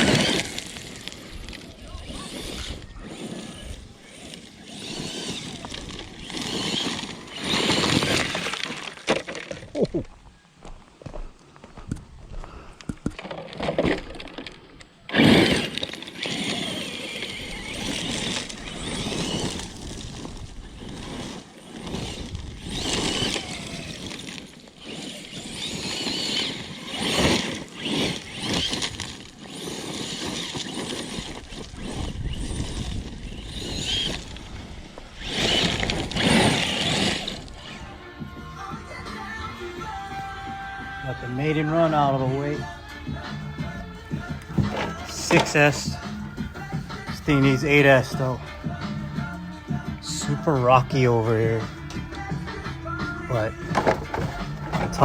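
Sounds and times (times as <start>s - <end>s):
electric motor whining: 0.0s - 10.1s, 13.2s - 55.0s
tyres grinding over rocks: 0.0s - 11.2s, 11.8s - 55.0s.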